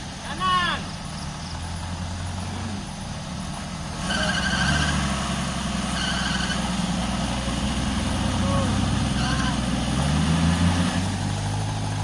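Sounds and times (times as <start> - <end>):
off-road vehicle engine: 0.0 - 12.0
high-pitched squeals: 4.0 - 5.1, 5.9 - 6.8.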